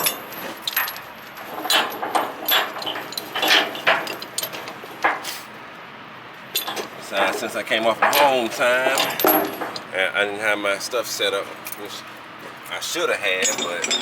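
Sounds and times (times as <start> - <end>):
metal chain clinking and rattling: 0.0 - 5.2, 6.5 - 9.9, 13.3 - 14.0.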